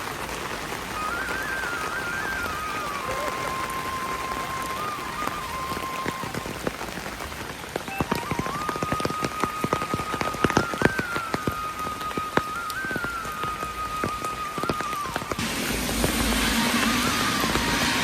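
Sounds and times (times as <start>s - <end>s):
drops dripping and splashing: 0.0s - 18.0s
rain falling: 0.0s - 18.0s
background music melody: 7.8s - 18.0s.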